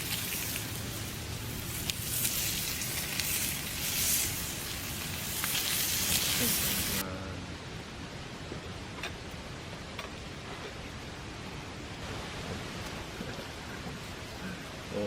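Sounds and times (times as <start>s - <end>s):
food sizzling on a grill: 0.0s - 7.0s
wood fire crackling: 0.0s - 15.0s.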